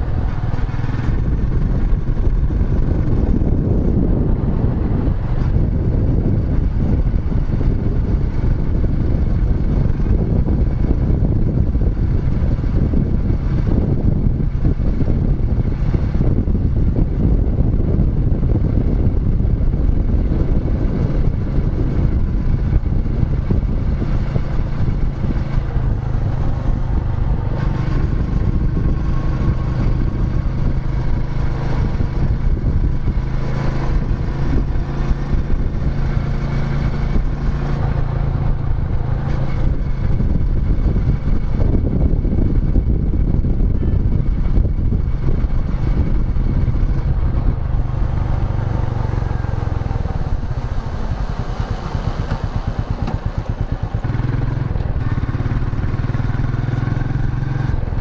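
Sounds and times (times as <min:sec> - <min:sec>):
motorcycle engine thumping: 0:49.8 - 0:55.0.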